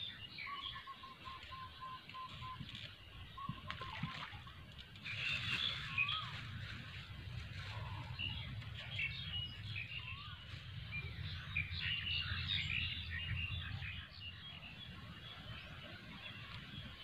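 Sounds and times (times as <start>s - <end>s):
small birds chirping: 0.0s - 17.0s
low rumble: 5.7s - 15.5s.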